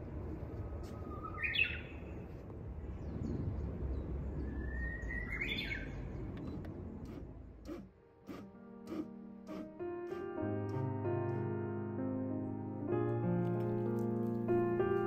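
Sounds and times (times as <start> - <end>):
low outdoor rumble: 0.0 - 8.2.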